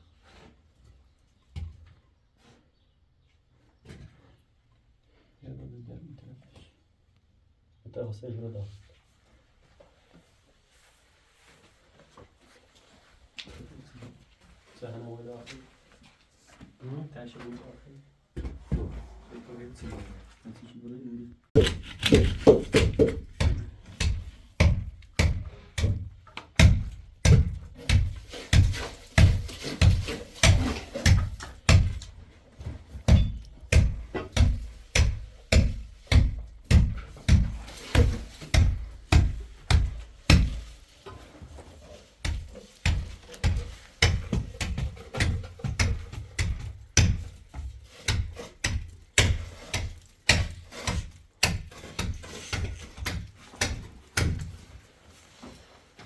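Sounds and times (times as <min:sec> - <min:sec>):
repeated dull thumps: 0:21.6 - 0:32.2, 0:33.0 - 0:40.8, 0:42.2 - 0:50.6.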